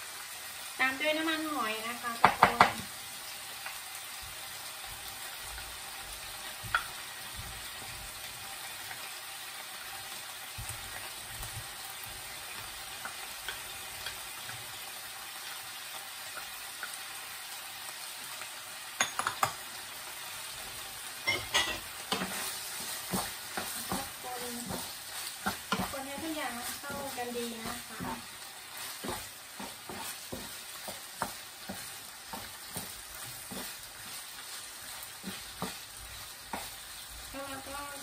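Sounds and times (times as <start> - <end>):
food sizzling in hot oil: 0.0 - 38.0
wooden spatula scraping a pan: 21.8 - 38.0.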